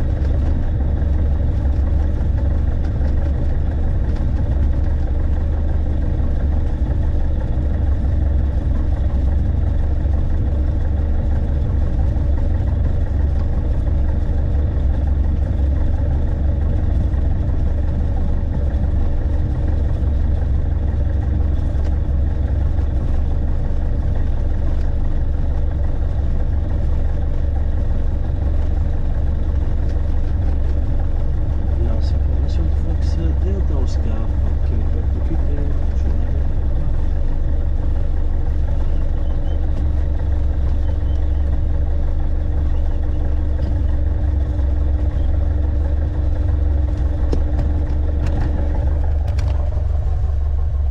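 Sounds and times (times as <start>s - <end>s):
light aircraft engine droning: 0.0s - 50.9s.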